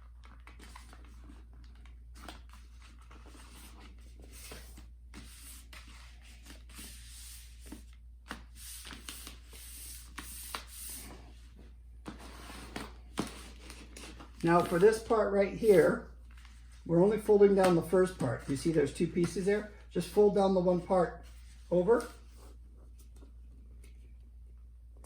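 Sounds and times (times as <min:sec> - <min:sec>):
paper rustling: 0:12.0 - 0:24.0.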